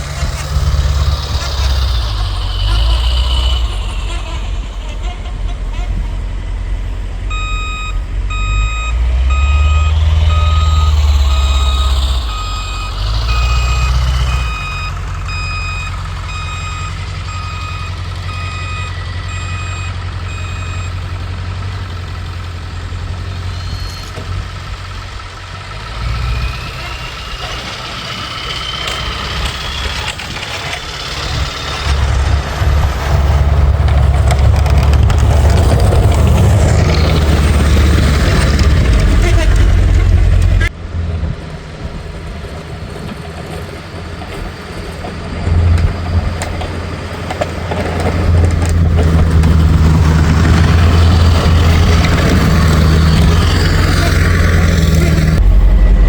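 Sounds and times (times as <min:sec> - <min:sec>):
diesel engine revving under load: 0:00.0 - 0:56.0
reversing alarm beeping: 0:07.2 - 0:22.2, 0:47.3 - 0:56.0.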